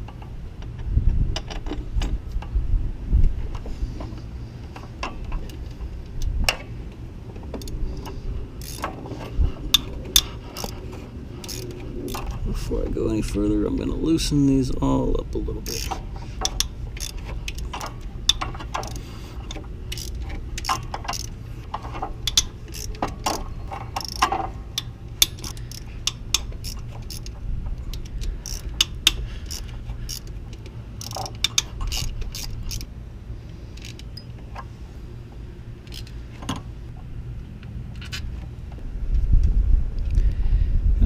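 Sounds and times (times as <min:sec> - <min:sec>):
steady low hum: 0:00.0 - 0:41.0
socket ratchet clicking: 0:08.6 - 0:08.9, 0:15.7 - 0:32.9.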